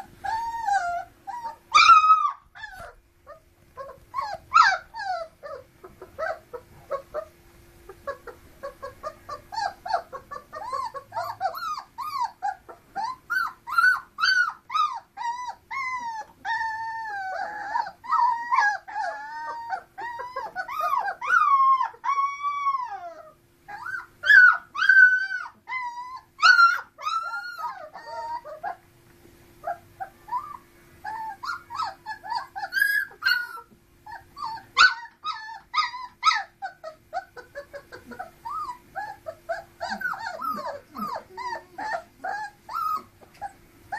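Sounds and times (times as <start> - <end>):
puppies whining and squealing: 0.0 - 28.9, 29.6 - 43.9
faint steady hum: 0.0 - 43.9.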